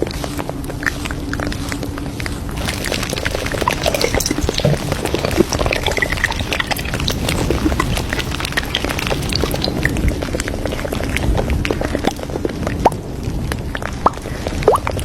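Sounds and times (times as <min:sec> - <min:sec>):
crockery and cutlery clinking: 0:02.6 - 0:08.3
liquid pouring: 0:02.6 - 0:10.1.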